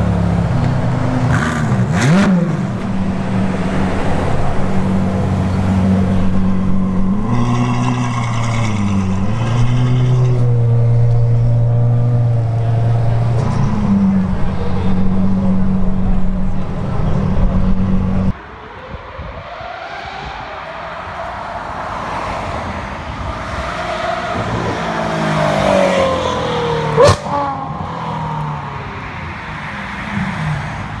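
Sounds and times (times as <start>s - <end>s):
car engine running deep: 0.0s - 18.3s
car passing at speed: 1.2s - 16.1s, 17.2s - 31.0s.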